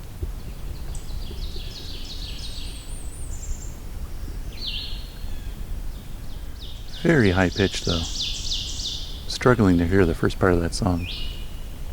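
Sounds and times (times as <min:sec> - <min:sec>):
low background rumble: 0:00.0 - 0:11.9
warbler singing high thin notes: 0:06.6 - 0:11.7.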